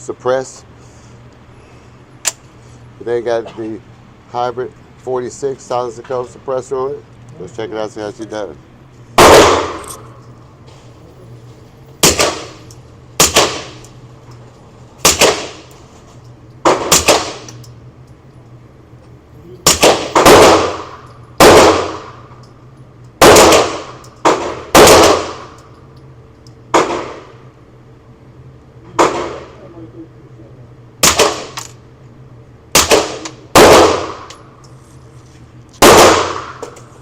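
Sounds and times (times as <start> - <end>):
suppressed pistol shots: 9.2 - 10.1, 12.0 - 12.6, 13.2 - 13.9, 15.0 - 15.7, 16.6 - 17.6, 19.6 - 22.2, 23.2 - 25.5, 31.0 - 31.7, 32.7 - 34.4, 35.8 - 36.7.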